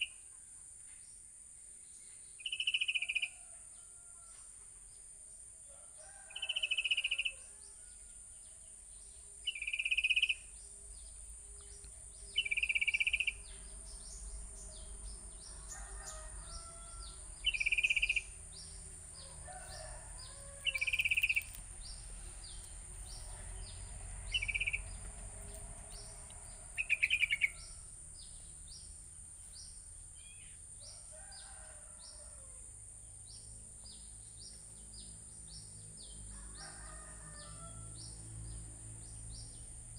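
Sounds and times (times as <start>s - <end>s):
high insect drone: 1.9s - 39.9s
bulbul calling: 9.5s - 10.5s, 12.4s - 13.4s, 17.4s - 18.3s, 20.6s - 21.6s, 24.3s - 24.8s, 26.8s - 27.8s.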